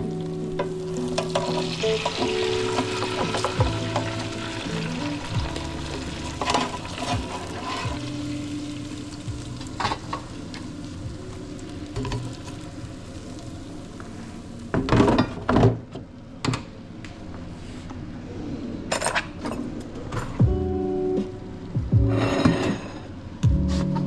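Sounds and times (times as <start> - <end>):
sizzling hiss: 0.0 - 14.7
utensil scraping in a pan: 6.4 - 8.0.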